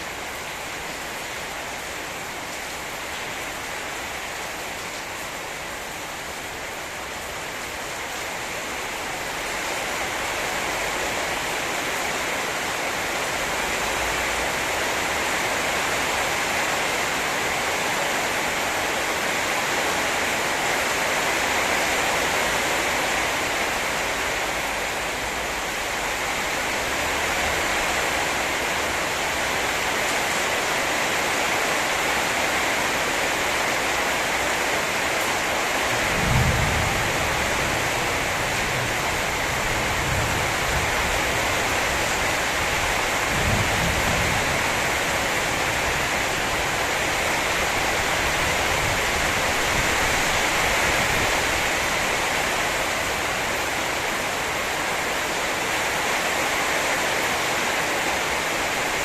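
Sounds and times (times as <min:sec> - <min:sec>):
heavy rain: 0:00.0 - 0:59.0
low thunder rumbles: 0:36.0 - 0:41.5, 0:43.2 - 0:46.1.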